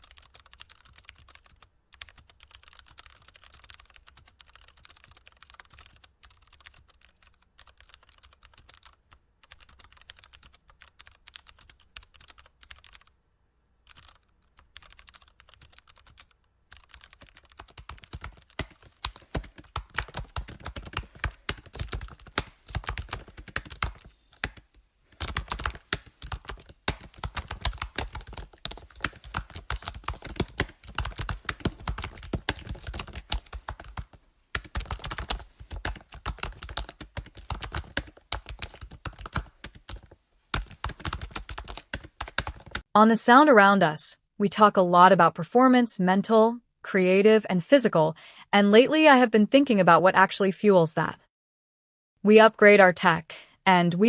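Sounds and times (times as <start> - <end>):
computer keyboard typing: 0.0 - 13.1, 13.8 - 42.9.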